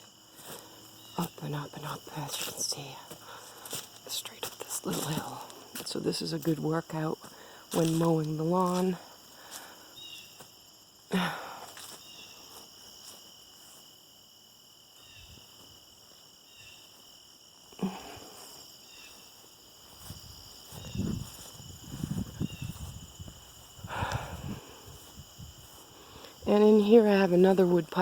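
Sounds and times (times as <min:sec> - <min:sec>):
crunching footsteps: 0:00.0 - 0:14.2, 0:14.8 - 0:28.0
crickets and insects trilling: 0:00.0 - 0:28.0.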